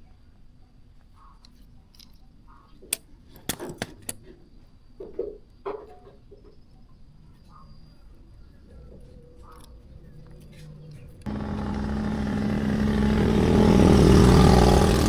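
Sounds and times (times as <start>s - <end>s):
metal parts clicking and knocking: 2.9s - 4.3s
faint bird chirps: 6.3s - 11.2s.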